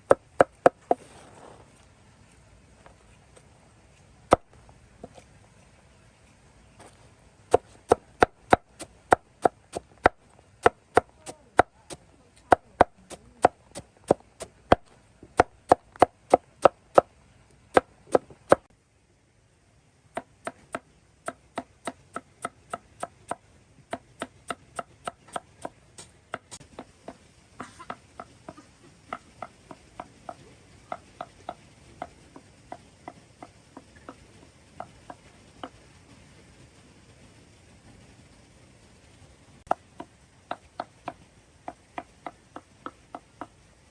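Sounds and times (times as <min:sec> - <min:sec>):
chopping strikes: 0:20.2 - 0:25.7.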